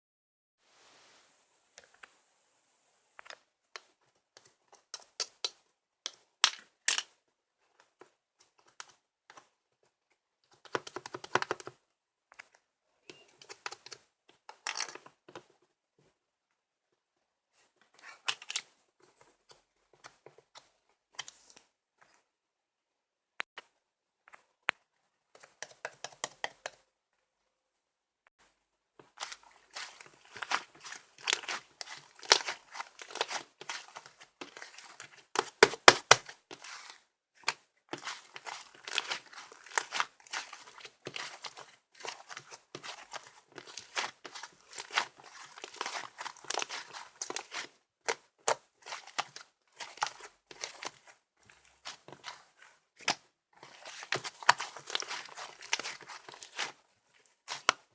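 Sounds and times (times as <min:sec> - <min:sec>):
slime crackling and popping: 0:29.2 - 0:47.7, 0:53.0 - 0:56.7.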